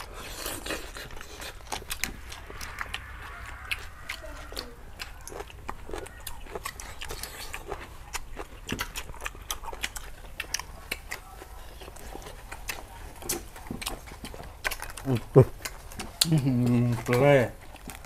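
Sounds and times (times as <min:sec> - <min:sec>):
people chewing and lip smacking: 0:00.0 - 0:18.0.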